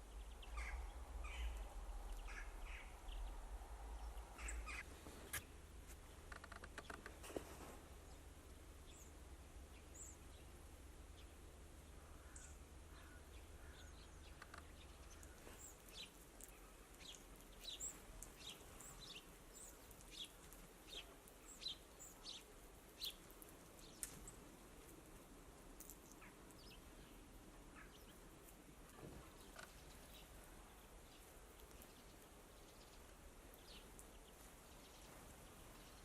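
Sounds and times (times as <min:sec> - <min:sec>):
low background rumble: 0:00.0 - 0:07.1
songbirds chirping: 0:00.0 - 0:36.0.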